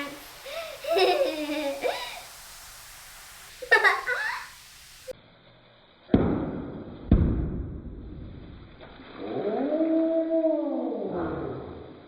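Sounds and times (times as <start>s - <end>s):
gas hissing: 0.0s - 5.2s
plastic bag bursting with a pop: 6.1s - 9.0s.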